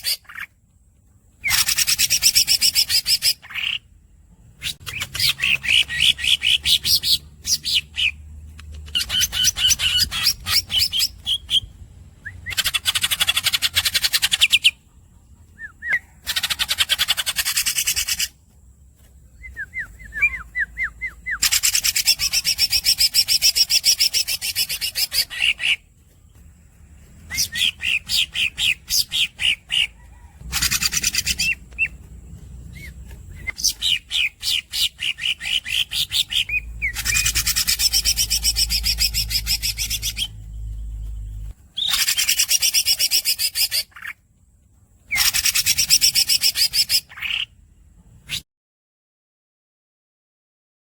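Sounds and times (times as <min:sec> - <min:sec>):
high squeaky bird chirps: 0:00.0 - 0:00.5, 0:01.4 - 0:03.9, 0:04.6 - 0:18.4, 0:19.4 - 0:25.9, 0:27.2 - 0:44.2, 0:45.1 - 0:47.6
bird rolling trills: 0:08.8 - 0:44.2.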